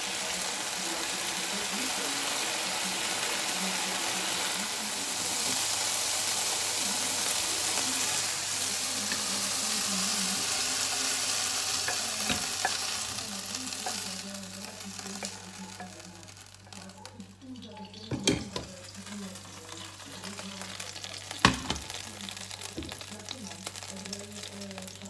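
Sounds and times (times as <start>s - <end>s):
chicken sizzling in frying pan: 0.0s - 25.0s
spatula clicking on pan: 11.6s - 13.0s.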